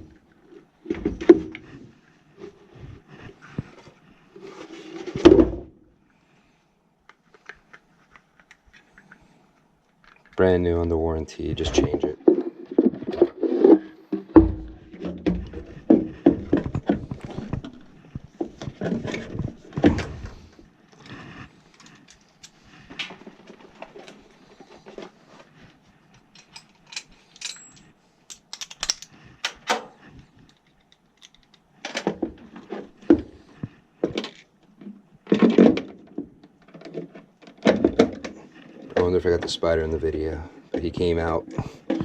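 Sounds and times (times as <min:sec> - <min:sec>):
heavy thumps: 0:14.1 - 0:17.7
clicks knocks and clatter: 0:26.2 - 0:33.3.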